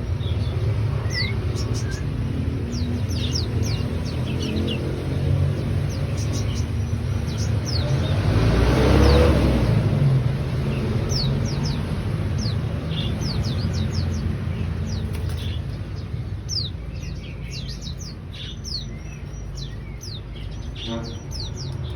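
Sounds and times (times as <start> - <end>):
bird singing high sharp notes: 0.3 - 4.8.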